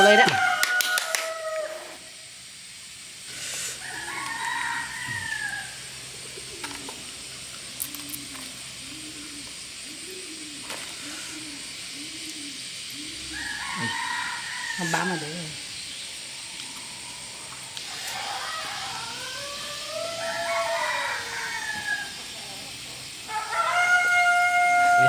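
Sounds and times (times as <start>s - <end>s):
rooster crowing: 0.0s - 2.1s, 3.8s - 6.1s, 13.0s - 15.7s, 16.8s - 22.4s, 23.0s - 25.0s
hen clucking: 8.2s - 15.7s.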